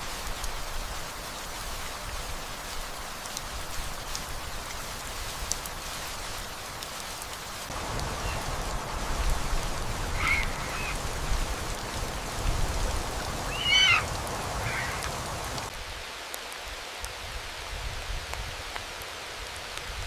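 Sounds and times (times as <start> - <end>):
steady rain: 0.0 - 20.0
short pitched animal calls: 10.2 - 11.0, 13.5 - 15.0.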